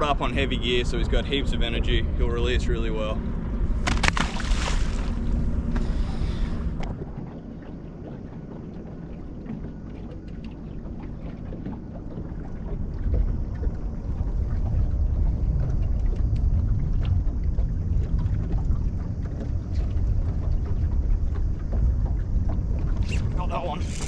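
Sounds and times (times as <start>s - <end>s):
wind buffeting microphone: 12.0s - 24.0s.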